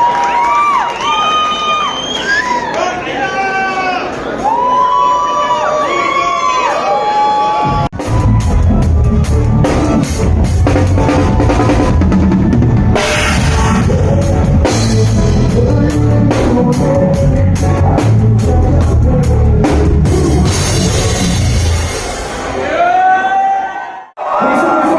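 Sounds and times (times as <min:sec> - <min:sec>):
heavy bass line: 0:07.6 - 0:22.6
rapid drum hits: 0:07.6 - 0:22.7
loud band music: 0:07.6 - 0:23.1, 0:24.2 - 0:24.9.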